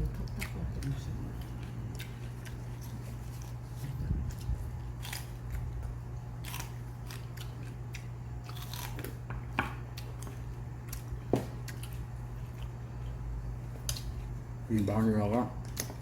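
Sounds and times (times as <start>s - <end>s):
steady low hum: 0.0s - 16.0s
chewing: 0.1s - 9.2s, 9.9s - 13.2s.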